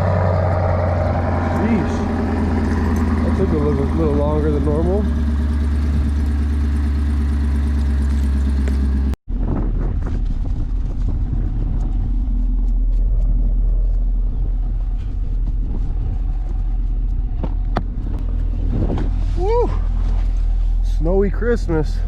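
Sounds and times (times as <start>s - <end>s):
car engine idling: 0.0s - 9.2s, 11.2s - 22.0s.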